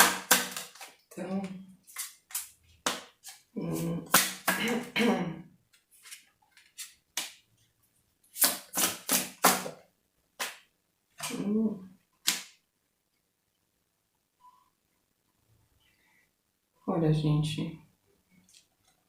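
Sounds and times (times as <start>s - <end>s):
cards being shuffled: 0.0s - 1.0s, 1.9s - 4.6s, 5.7s - 7.4s, 8.3s - 9.8s.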